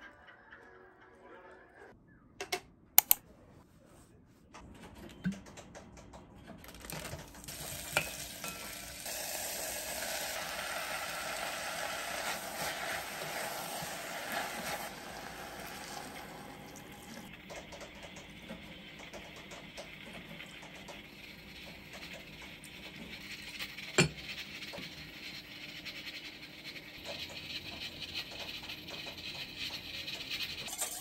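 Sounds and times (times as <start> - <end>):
seaweed sizzling in a pot: 7.4 - 17.4
wooden spoon stirring: 7.5 - 17.6.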